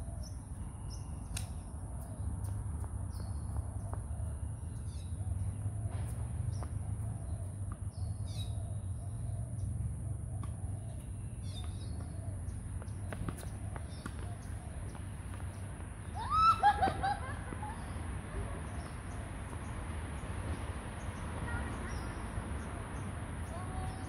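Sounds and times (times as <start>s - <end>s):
loud bird call: 16.1s - 17.9s.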